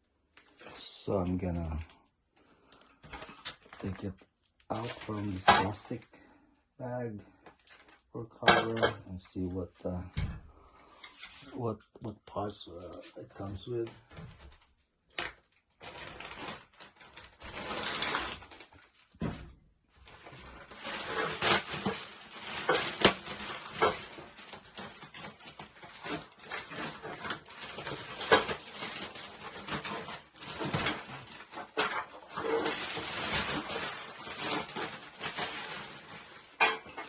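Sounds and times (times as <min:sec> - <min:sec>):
plastic bag crinkling: 0:02.6 - 0:06.0, 0:07.3 - 0:08.1, 0:15.8 - 0:19.1, 0:19.9 - 0:37.0.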